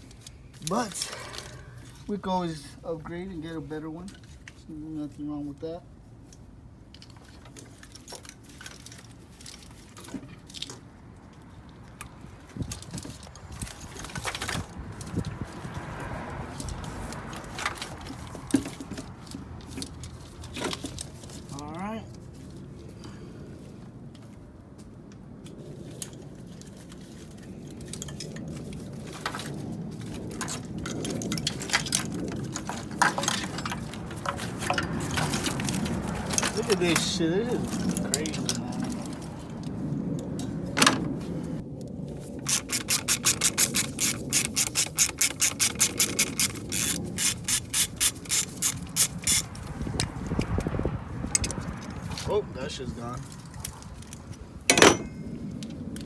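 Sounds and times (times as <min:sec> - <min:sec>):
metal tools clinking: 0:00.0 - 0:02.6, 0:30.4 - 0:39.2, 0:42.4 - 0:49.6, 0:51.3 - 0:55.3
hands working on engine parts: 0:06.2 - 0:21.7, 0:25.1 - 0:41.6, 0:42.3 - 0:50.7, 0:51.3 - 0:56.0.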